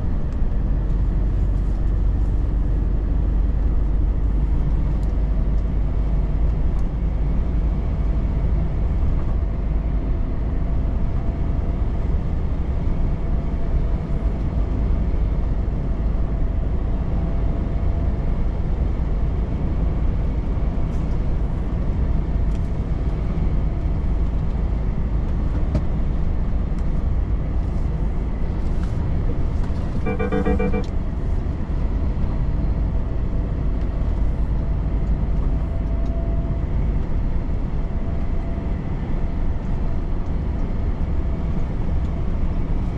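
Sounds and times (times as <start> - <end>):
truck engine and tyre drone: 0.0 - 42.9
short pitched horn tone: 30.0 - 30.9.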